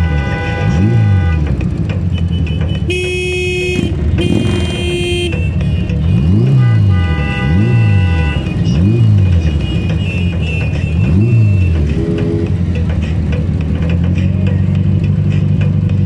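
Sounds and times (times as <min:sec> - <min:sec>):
vehicle horn honking: 0:00.0 - 0:11.6
motorcycle engines rumbling: 0:00.0 - 0:16.0
music with rhythmic bass: 0:00.0 - 0:16.0.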